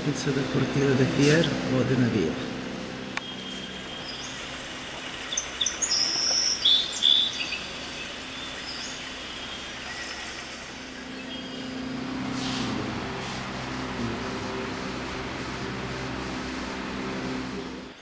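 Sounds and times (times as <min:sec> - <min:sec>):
steady low hum: 0:00.0 - 0:18.0
high bird chirps and whistles: 0:05.3 - 0:10.4.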